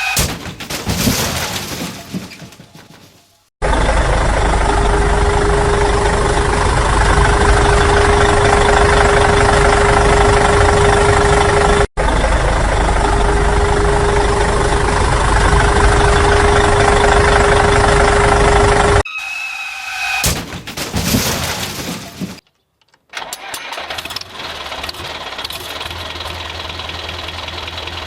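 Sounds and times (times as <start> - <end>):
engine idling: 3.6 - 19.0, 23.8 - 28.0.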